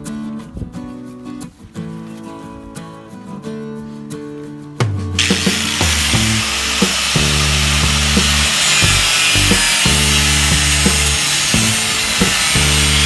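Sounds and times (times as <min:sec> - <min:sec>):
power tool on sheet metal: 0:05.2 - 0:13.0.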